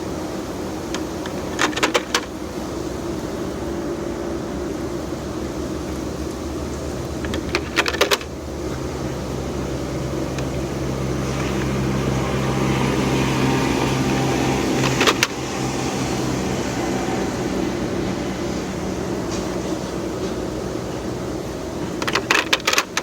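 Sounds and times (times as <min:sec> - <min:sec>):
machine hum: 0:00.0 - 0:23.0
clatter of sharp clicks: 0:21.9 - 0:23.0.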